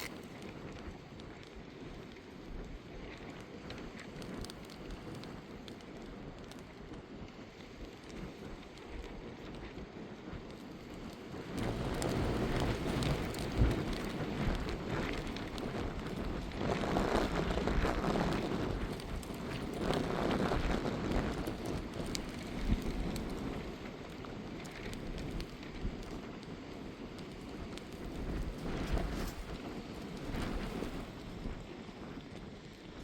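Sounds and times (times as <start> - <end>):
gusts of wind: 0.0 - 33.0
steady rain: 0.0 - 33.0.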